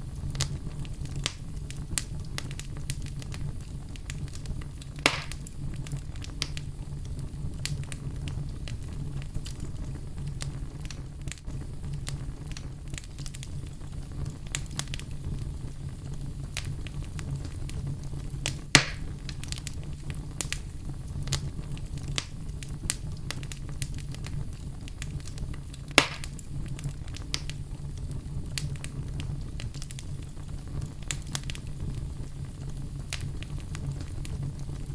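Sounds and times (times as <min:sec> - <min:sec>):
fire crackling: 0:00.0 - 0:34.9
loud sharp pops: 0:05.0 - 0:05.5, 0:18.7 - 0:19.2, 0:25.9 - 0:26.4.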